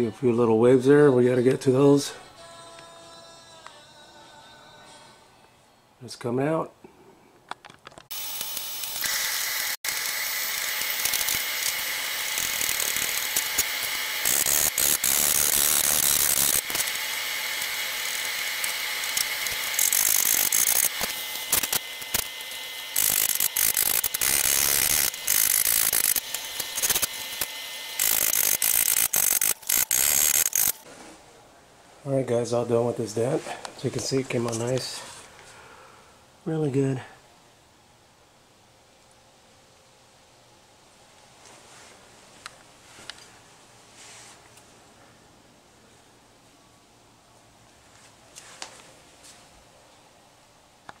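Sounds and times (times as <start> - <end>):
dent repair tools clicking on metal: 17.6 - 30.8.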